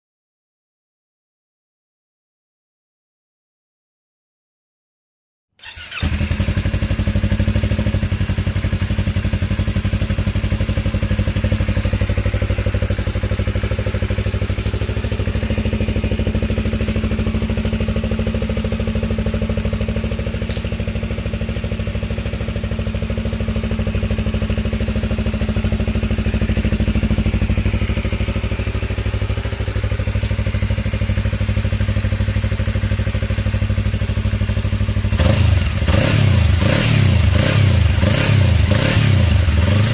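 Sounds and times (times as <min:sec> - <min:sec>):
motorcycle engine idling: 0:05.6 - 0:39.9.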